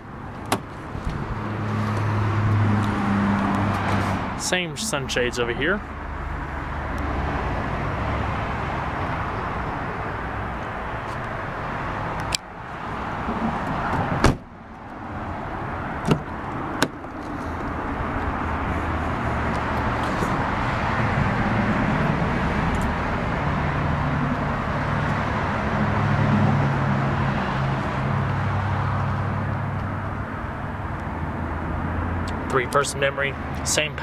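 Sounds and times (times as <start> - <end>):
car door shutting: 0.4 - 1.2, 13.9 - 14.5, 16.0 - 17.3.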